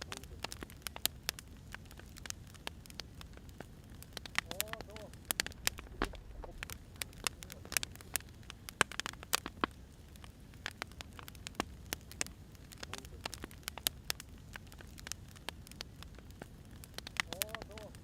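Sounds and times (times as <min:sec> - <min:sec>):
burning logs popping and snapping: 0:00.0 - 0:18.0
low steady rumble: 0:04.7 - 0:08.9.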